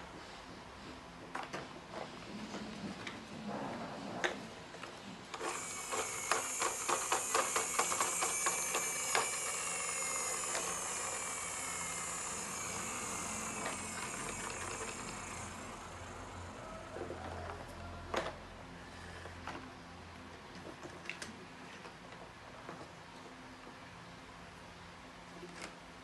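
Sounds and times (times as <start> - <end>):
small motorised machine hissing: 5.3 - 18.0
rapid clicks: 5.4 - 15.8.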